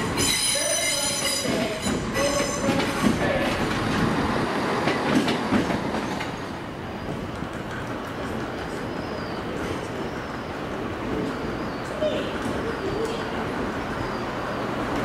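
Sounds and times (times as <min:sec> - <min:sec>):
train wheels clicking over rail joints: 0:00.0 - 0:10.4.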